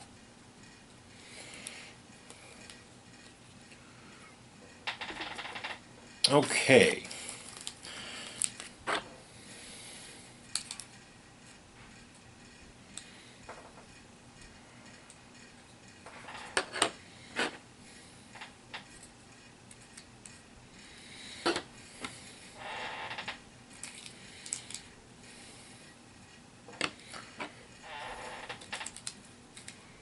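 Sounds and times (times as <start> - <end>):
plastic pieces clicking on table: 28.6 - 29.8.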